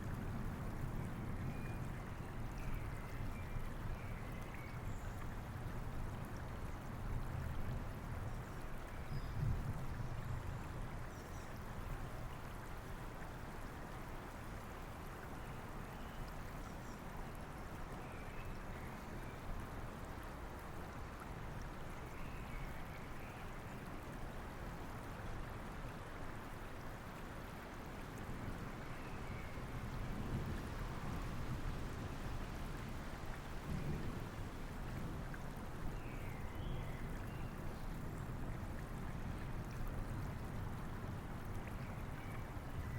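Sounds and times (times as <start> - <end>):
rain: 0.0 - 42.9
river flowing: 0.0 - 42.9
distant thunder rumble: 33.6 - 35.4.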